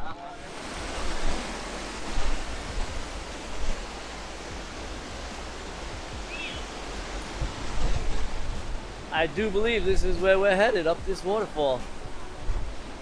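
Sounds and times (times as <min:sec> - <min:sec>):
waterfall rushing: 0:00.2 - 0:11.7
low thumps: 0:00.4 - 0:09.8.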